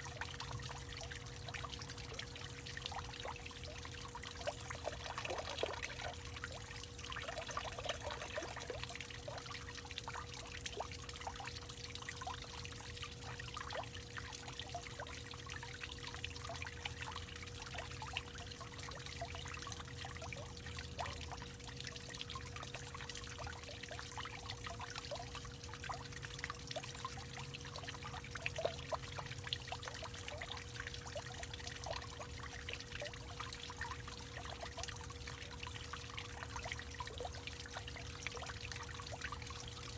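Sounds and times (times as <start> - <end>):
water trickling and pouring: 0.0 - 39.9.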